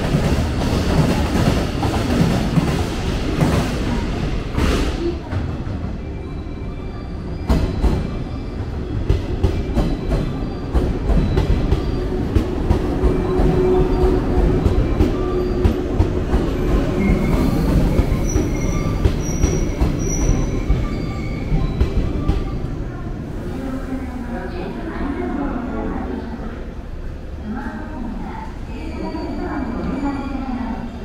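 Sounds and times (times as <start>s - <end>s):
electric train rumbling: 0.0s - 31.0s
train brakes squealing: 6.0s - 22.7s, 28.7s - 31.0s.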